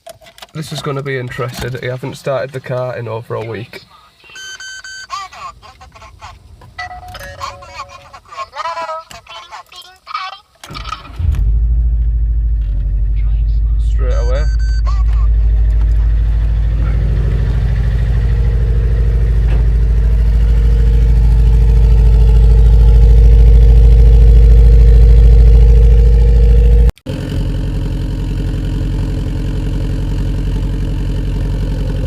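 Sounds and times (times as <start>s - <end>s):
car engine idling: 10.7s - 32.0s.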